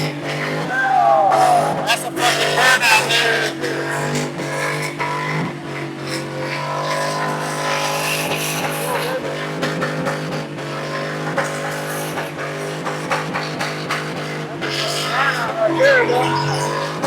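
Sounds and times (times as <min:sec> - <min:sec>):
car engine revving high: 0:00.0 - 0:17.0
tyres spinning: 0:13.7 - 0:17.0.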